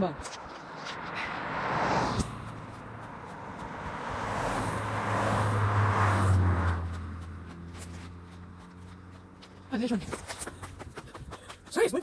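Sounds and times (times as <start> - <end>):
car driving past: 0.5 - 9.7.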